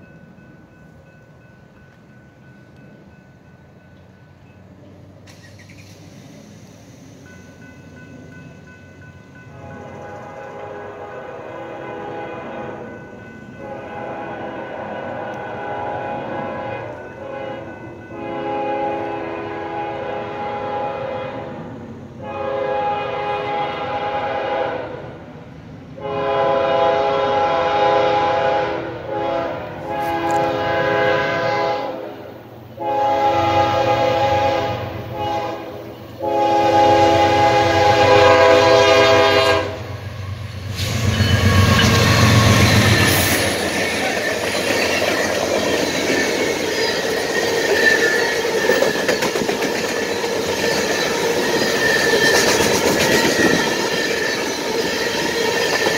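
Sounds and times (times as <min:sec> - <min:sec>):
train wheels clickety-clack: 0:00.0 - 0:11.0, 0:40.4 - 0:55.9
locomotive rumbling past: 0:00.0 - 0:55.9
train air horn blasts: 0:09.5 - 0:25.2, 0:26.0 - 0:43.7.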